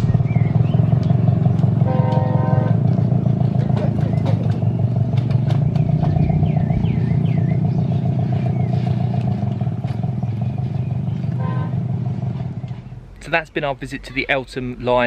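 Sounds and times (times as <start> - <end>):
small diesel locomotive engine running: 0.0 - 13.8.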